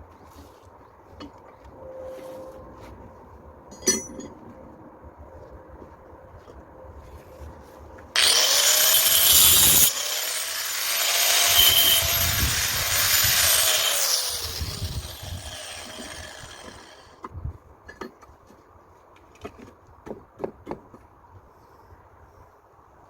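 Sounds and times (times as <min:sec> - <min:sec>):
power cutting tool hissing: 0:08.2 - 0:17.1.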